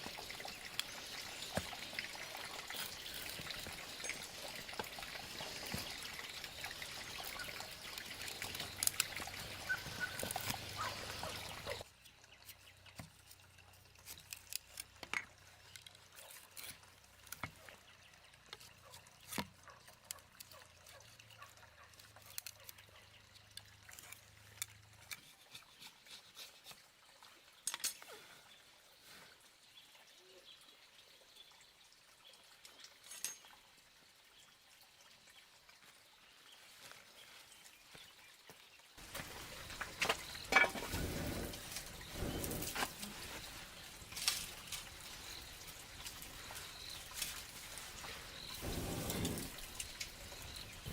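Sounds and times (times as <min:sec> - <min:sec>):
running water splashing: 0:00.0 - 0:11.9, 0:39.0 - 0:50.9.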